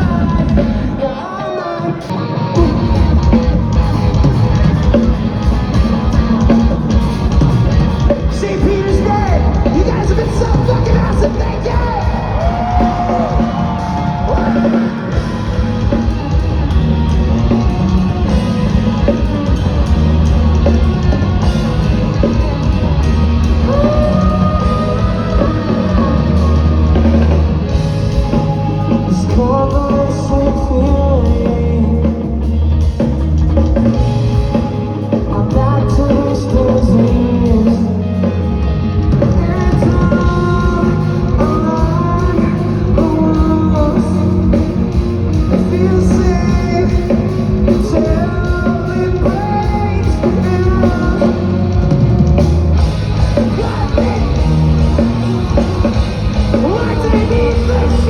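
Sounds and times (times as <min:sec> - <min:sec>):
yelled vocals: 0:00.0 - 0:31.3, 0:39.2 - 0:58.0
heavy drums: 0:00.0 - 0:58.0
live rock band playing: 0:00.0 - 0:58.0
person singing long notes: 0:21.0 - 0:32.4.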